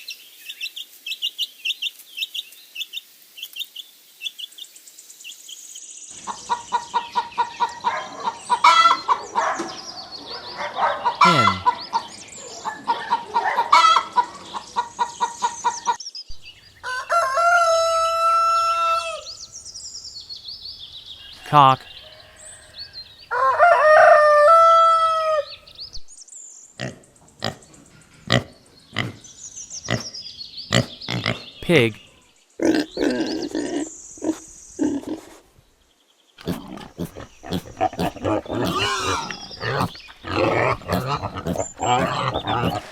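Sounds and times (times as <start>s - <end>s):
pig grunting: 11.1s - 11.8s, 26.8s - 29.3s, 29.9s - 30.1s, 30.7s - 32.0s, 32.6s - 35.5s, 36.4s - 42.9s
hens clucking: 11.1s - 12.0s, 36.4s - 42.9s.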